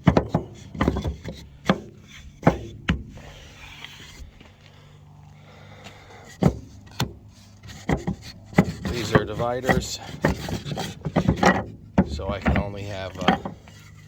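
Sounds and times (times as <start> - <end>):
wooden bars knocking: 0.0 - 3.1, 6.4 - 13.9
wood rubbing: 0.0 - 4.8, 5.5 - 14.0.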